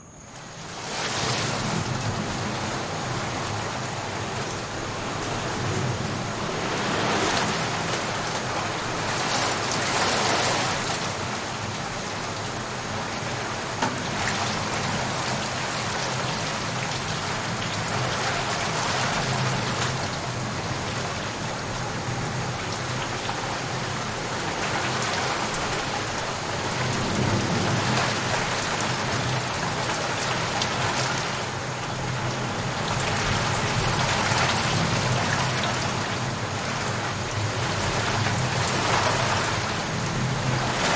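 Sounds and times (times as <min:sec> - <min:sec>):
heavy rain: 0:00.4 - 0:40.9
low rumble: 0:04.7 - 0:09.4.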